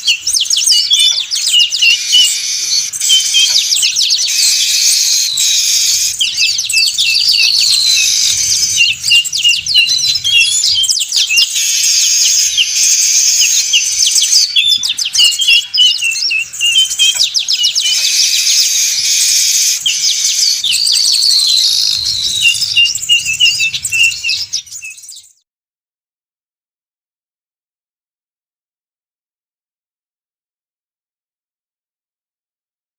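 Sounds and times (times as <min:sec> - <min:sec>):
flock of birds chattering: 0:00.0 - 0:25.3.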